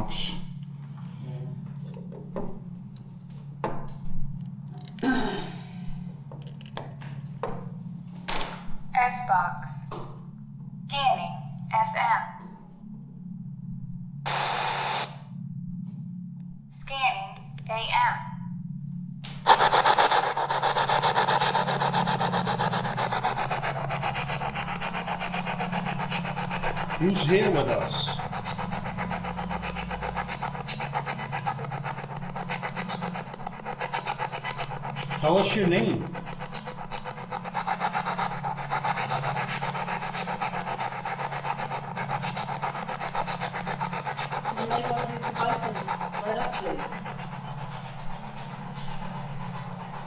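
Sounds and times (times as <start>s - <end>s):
steady low hum: 0.0s - 50.0s
chopped bursts of radio static: 14.3s - 15.2s
rapid pulses of radio static: 14.3s - 15.2s, 19.4s - 29.5s.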